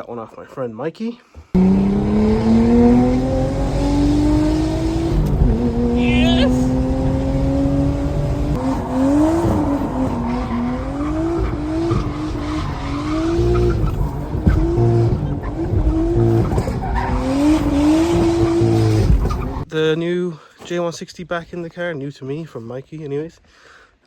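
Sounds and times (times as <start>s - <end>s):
car engine revving: 1.6s - 19.7s
tyres squealing and skidding: 5.7s - 19.7s.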